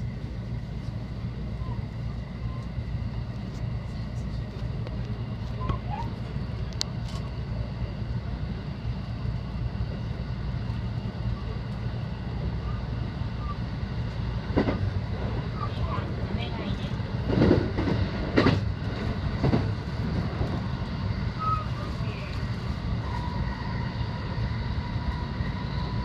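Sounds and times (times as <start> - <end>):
train low rumble: 0.0 - 26.0.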